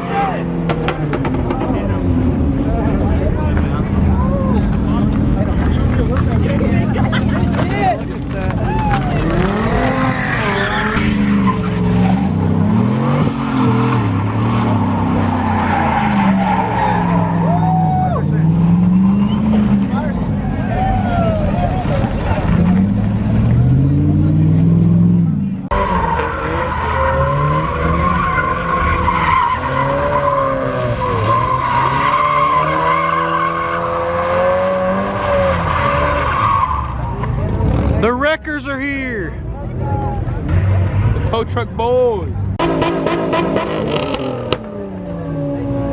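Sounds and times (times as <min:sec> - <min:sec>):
tires squealing on pavement: 0:04.1 - 0:24.5, 0:25.7 - 0:39.2, 0:42.6 - 0:44.6
car engine revving hard: 0:09.2 - 0:17.5, 0:22.3 - 0:36.7, 0:42.6 - 0:45.9.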